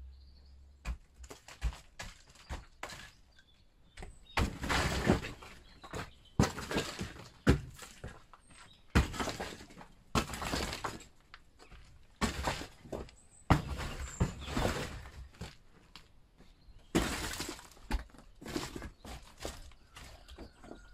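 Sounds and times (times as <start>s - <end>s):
bricks and rubble clattering: 4.4s - 8.2s, 8.9s - 15.6s, 16.9s - 20.8s.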